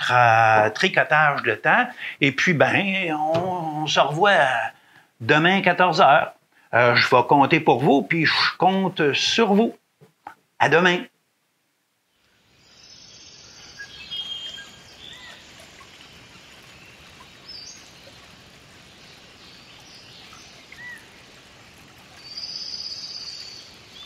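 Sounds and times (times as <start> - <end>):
bird trilling song: 12.6 - 15.9
bird chirps: 12.6 - 18.1, 22.2 - 24.0.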